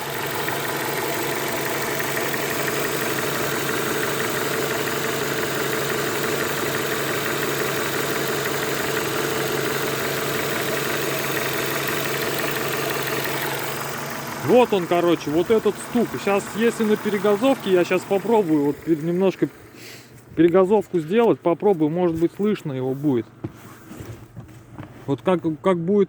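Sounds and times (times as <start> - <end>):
engine knock: 0.0 - 19.6
car engine idling: 0.0 - 26.0.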